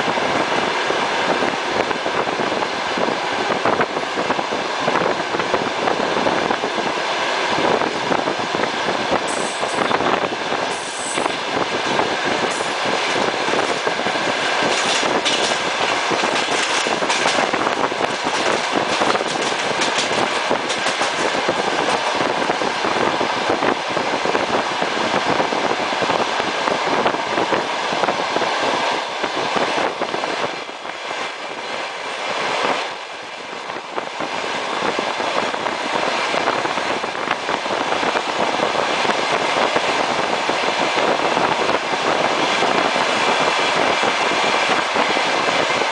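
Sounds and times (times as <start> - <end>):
train wheels rumbling on track: 0.0 - 45.9
clicks over rail joints: 14.6 - 22.2.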